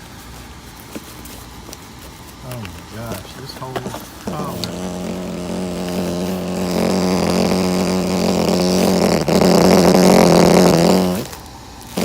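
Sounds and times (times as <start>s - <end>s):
loose tape buzzing in air stream: 0.8s - 12.0s.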